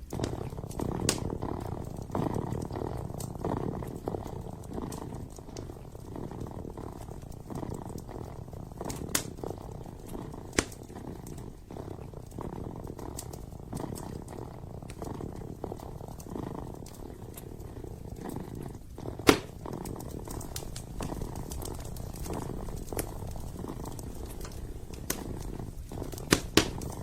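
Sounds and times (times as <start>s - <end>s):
kitten purring: 0.0s - 27.0s
wood fire crackling: 0.0s - 27.0s.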